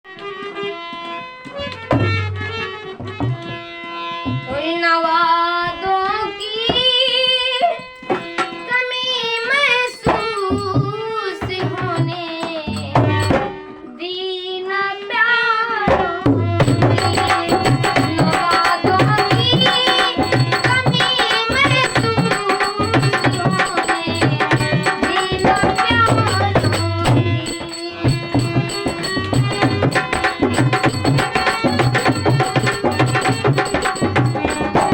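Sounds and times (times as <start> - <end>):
tabla playing: 0.1 - 5.1, 6.4 - 14.2, 15.8 - 34.9
wavering melody line: 16.6 - 34.9.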